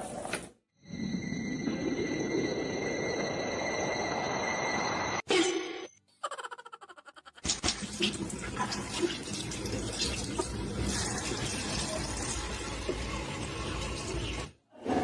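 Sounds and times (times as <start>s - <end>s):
running water: 7.5s - 14.6s.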